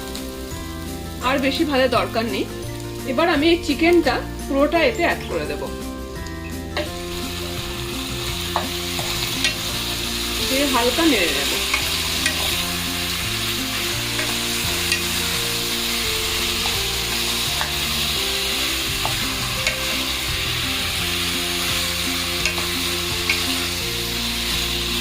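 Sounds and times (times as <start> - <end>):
chicken sizzling in hot oil: 0.0 - 25.0
spatula clicking against pan: 22.4 - 23.5.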